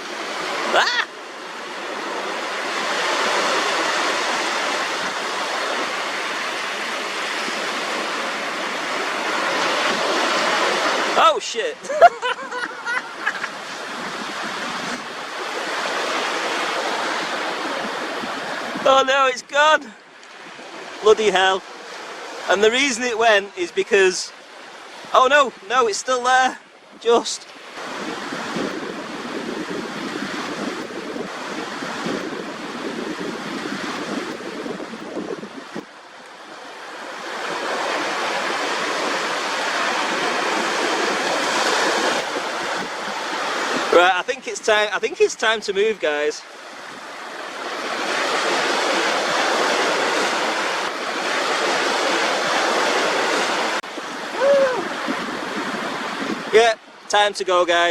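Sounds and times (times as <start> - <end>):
sea waves washing ashore: 0.0 - 57.9
wind on microphone: 1.5 - 11.2, 11.9 - 18.9, 27.7 - 44.0, 46.7 - 56.6.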